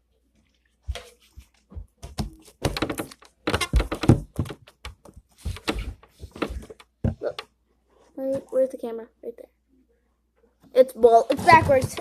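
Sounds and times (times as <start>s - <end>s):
objects thunking and knocking: 0.9s - 7.6s, 11.3s - 12.0s.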